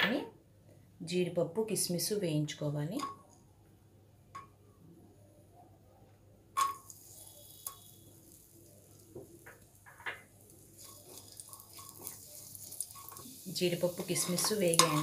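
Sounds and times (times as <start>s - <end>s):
nuts sizzling with small pops: 6.5s - 15.0s
spatula scraping pan: 10.6s - 15.0s.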